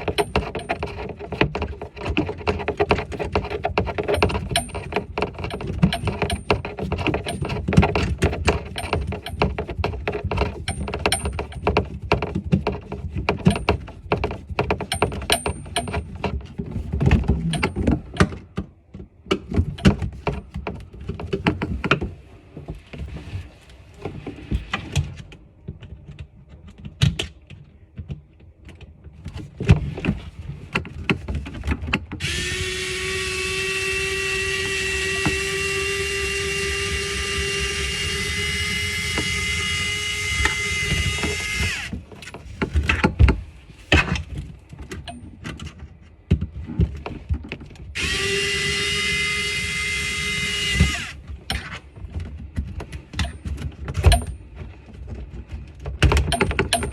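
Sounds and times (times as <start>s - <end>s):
hand tools knocking and clicking: 0.0s - 22.0s
power tool motor whine: 32.2s - 41.9s, 48.0s - 51.2s.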